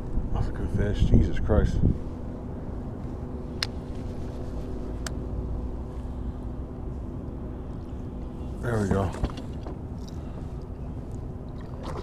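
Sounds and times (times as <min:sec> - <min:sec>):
wind rumbling on microphone: 0:00.0 - 0:05.9
faint steady hum: 0:00.0 - 0:12.0.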